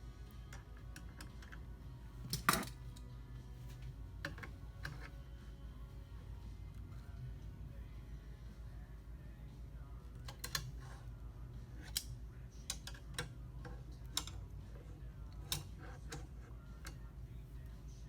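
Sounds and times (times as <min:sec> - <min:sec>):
low steady hum: 0:00.0 - 0:18.0
small metal parts clicking: 0:10.2 - 0:10.8, 0:11.8 - 0:14.5, 0:15.3 - 0:17.0.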